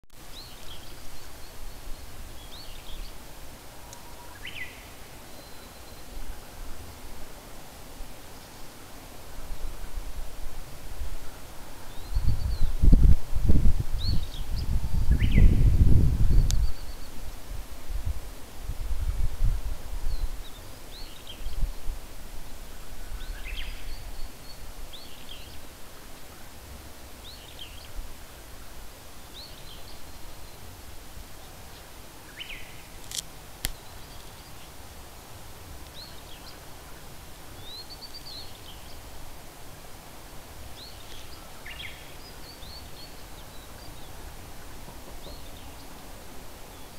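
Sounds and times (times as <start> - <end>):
wild birds calling: 0.4 - 6.6.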